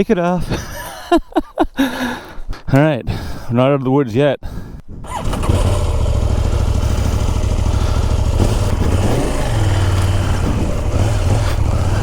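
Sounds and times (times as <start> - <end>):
motorcycle engine running: 5.1 - 12.0.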